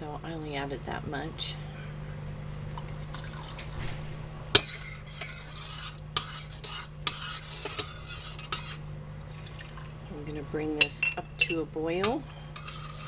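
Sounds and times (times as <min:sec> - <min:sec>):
spoon scraping pan: 0:01.4 - 0:13.0
spoon clinking against pot: 0:04.6 - 0:10.0, 0:10.8 - 0:13.0.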